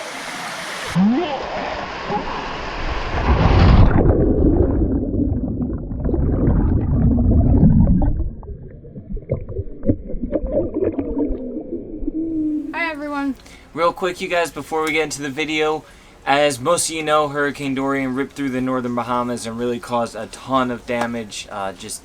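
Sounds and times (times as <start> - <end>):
waterfall rushing water: 0.0 - 2.6
underwater rumbling gurgle: 0.9 - 12.7.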